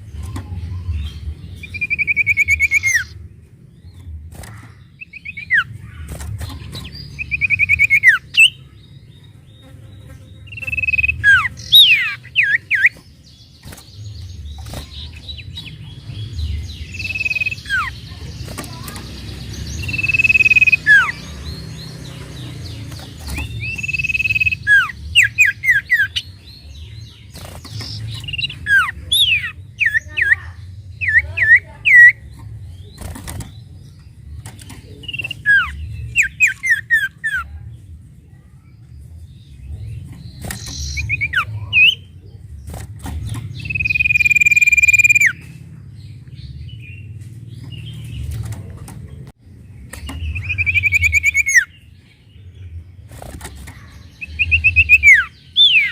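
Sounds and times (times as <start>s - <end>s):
songbird whistles and chirps: 1.6s - 3.2s, 6.8s - 8.6s, 10.5s - 13.0s, 19.8s - 21.2s, 23.3s - 26.2s, 43.6s - 45.5s, 50.0s - 51.8s.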